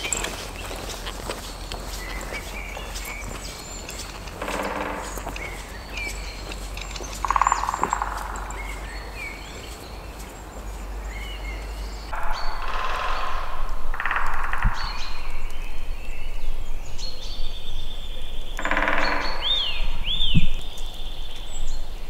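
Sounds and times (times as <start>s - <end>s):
rasping bird calls: 0.0s - 15.3s, 18.6s - 19.8s
birds chirping and whistling: 0.0s - 22.0s.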